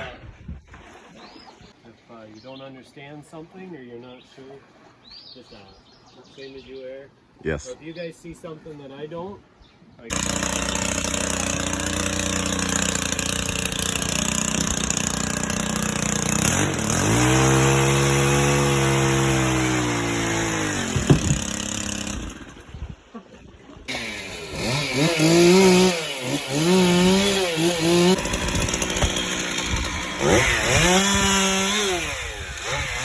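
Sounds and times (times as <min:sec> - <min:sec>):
chainsaw cutting wood: 0:10.1 - 0:22.8, 0:23.9 - 0:33.0.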